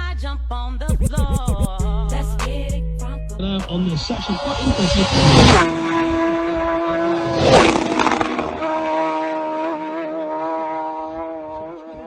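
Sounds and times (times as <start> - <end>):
motorcycle engine at high revs: 4.3 - 12.0.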